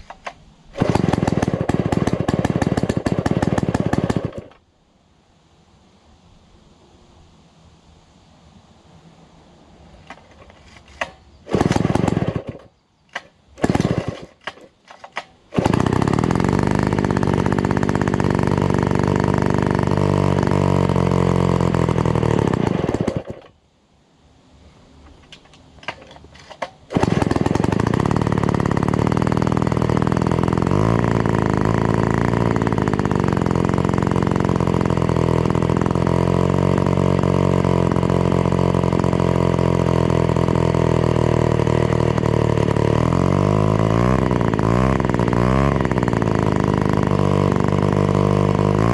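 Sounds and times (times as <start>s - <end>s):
chainsaw engine starting and running: 0.0s - 4.6s, 10.0s - 23.6s, 25.1s - 48.9s.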